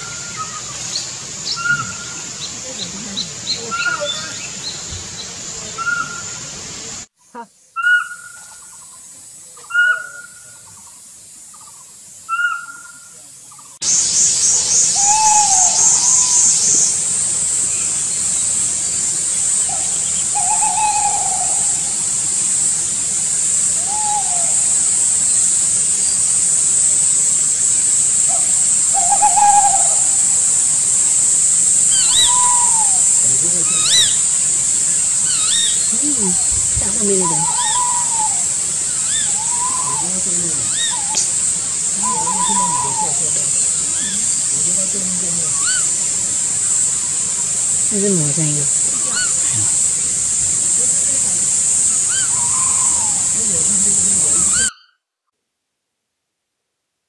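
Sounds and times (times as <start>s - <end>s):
bird calls: 0.0s - 6.6s, 7.3s - 26.6s, 28.0s - 55.0s
steady high-pitched drone: 13.8s - 54.7s.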